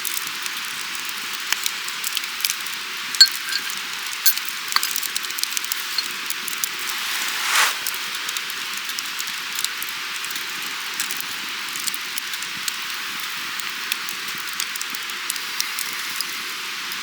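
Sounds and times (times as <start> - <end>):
rushing water: 6.7 - 8.3.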